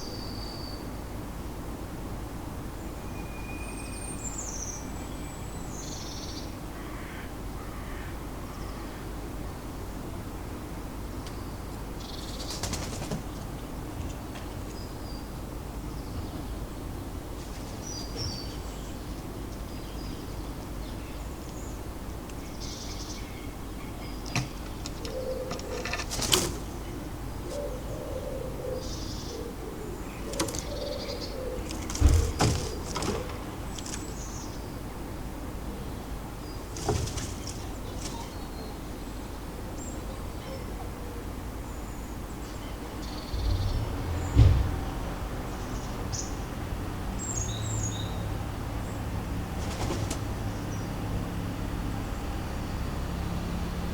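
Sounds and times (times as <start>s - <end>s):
small birds chirping: 11.0s - 53.6s
knocks and flutters at feeder: 24.3s - 27.0s, 31.6s - 34.3s, 36.7s - 38.4s, 49.5s - 50.5s.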